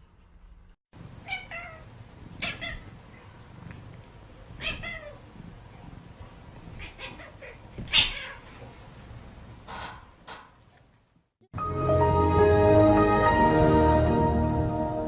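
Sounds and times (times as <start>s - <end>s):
cat meowing: 1.2s - 3.0s, 6.8s - 8.5s.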